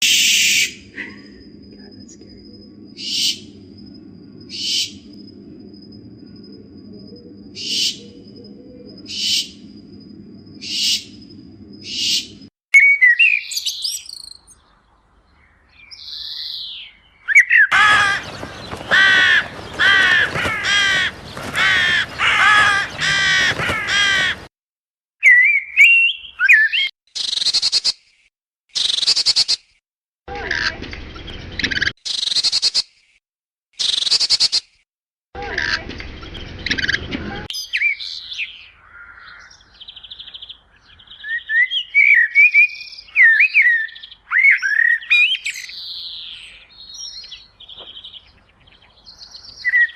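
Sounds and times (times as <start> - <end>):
bird song of sweeping notes: 0.0 - 24.5
harsh bird calls: 13.0 - 24.5, 36.2 - 49.9.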